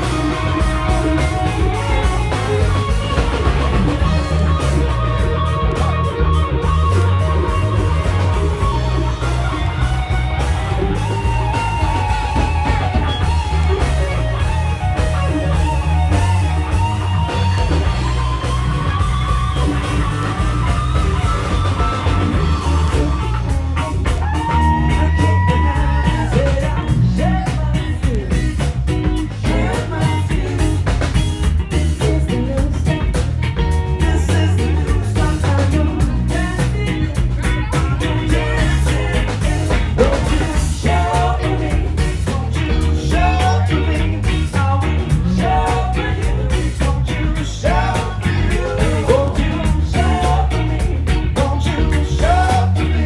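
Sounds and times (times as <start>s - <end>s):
drums steady beat: 0.0s - 53.0s
electric guitar: 0.0s - 53.0s
heavy bass: 0.0s - 53.0s
person singing: 21.0s - 53.0s.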